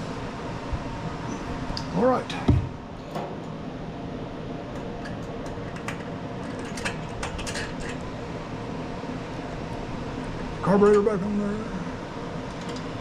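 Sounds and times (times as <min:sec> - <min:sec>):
steady background hum: 0:00.0 - 0:13.0
engine parts clicking and tapping: 0:12.5 - 0:12.9.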